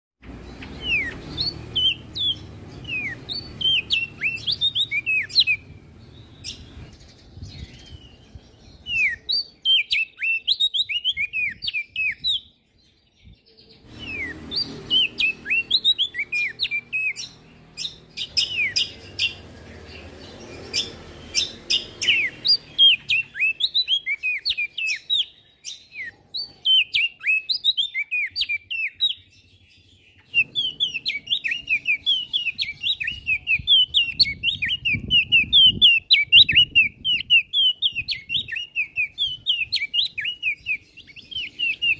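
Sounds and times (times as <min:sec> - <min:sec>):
songbird chirping: 0:00.2 - 0:41.9.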